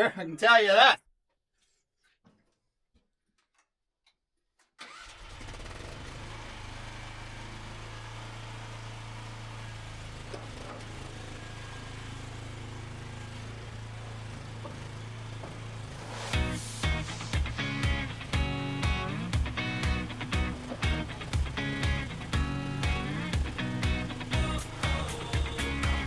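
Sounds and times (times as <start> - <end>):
skid steer engine running: 5.2 - 26.0
strummed guitar music: 16.3 - 26.0.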